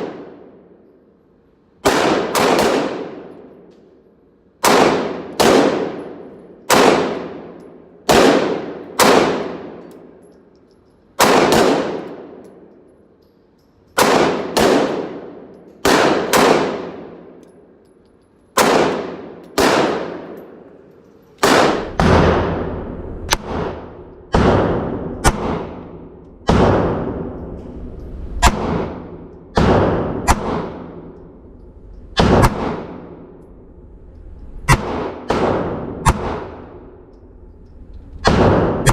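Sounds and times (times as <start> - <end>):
pistol shots echoing: 1.8 - 3.7, 4.6 - 10.2, 11.2 - 12.8, 14.0 - 17.7, 18.6 - 20.8, 21.4 - 27.4, 28.4 - 31.4, 32.2 - 33.4, 34.7 - 37.1, 38.2 - 38.9.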